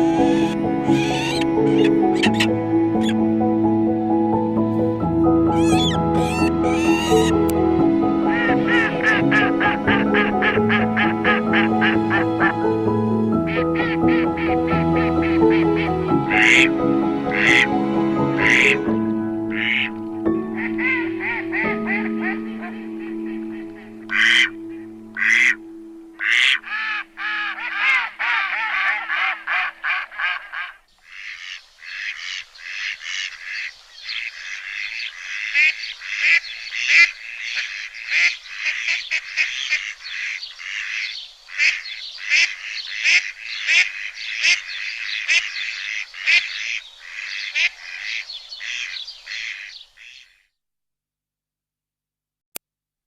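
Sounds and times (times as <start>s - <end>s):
ducks quacking: 0.0s - 3.2s, 5.5s - 7.5s, 8.2s - 18.9s, 19.5s - 25.6s, 26.2s - 50.4s
music with held notes: 0.0s - 26.8s.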